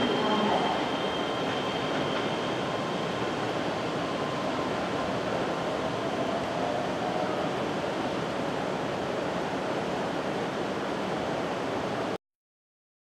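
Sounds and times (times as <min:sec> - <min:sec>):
electric train rolling away: 0:00.0 - 0:10.4.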